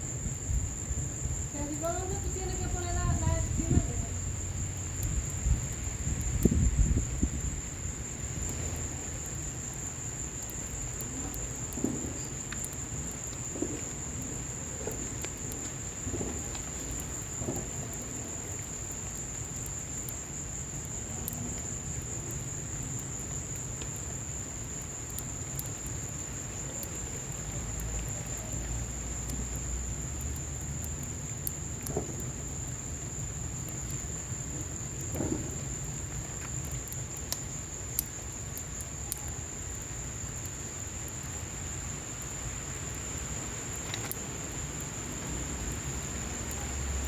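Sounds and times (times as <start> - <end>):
high-pitched insect trill: 0.0 - 47.0
rain: 0.0 - 47.0
wood fire crackling and popping: 0.0 - 47.0.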